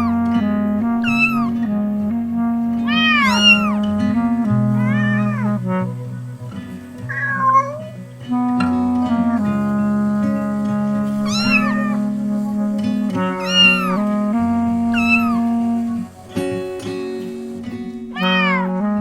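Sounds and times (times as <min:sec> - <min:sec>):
gentle background music: 0:00.0 - 0:19.0
cat meowing: 0:01.0 - 0:01.6, 0:02.8 - 0:03.8, 0:04.8 - 0:05.6, 0:07.1 - 0:08.0, 0:11.2 - 0:12.0, 0:13.2 - 0:14.1, 0:14.9 - 0:15.6, 0:18.1 - 0:18.8.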